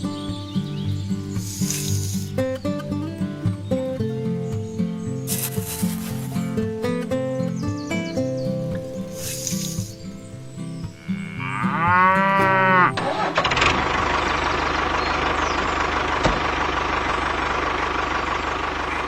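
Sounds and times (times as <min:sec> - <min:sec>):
background music: 0:00.0 - 0:14.5
small motor humming: 0:01.4 - 0:02.3
cow mooing: 0:10.9 - 0:13.3.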